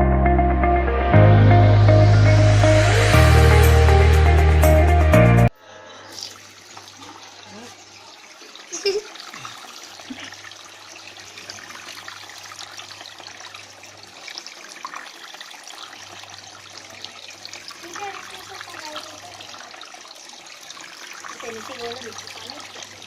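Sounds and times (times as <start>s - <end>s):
water splashing and trickling: 5.7s - 23.0s.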